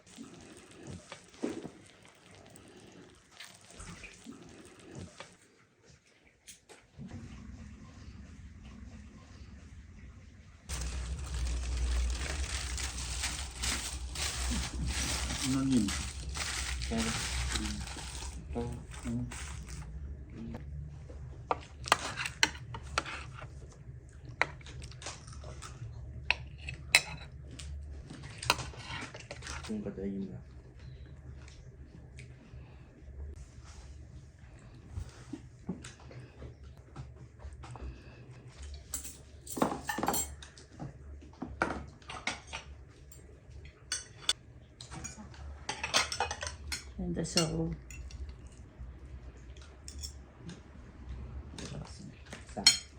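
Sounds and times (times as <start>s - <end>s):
low steady hum: 7.0s - 41.5s
dishes and cutlery clinking: 38.9s - 40.5s, 43.9s - 48.3s, 52.3s - 52.9s.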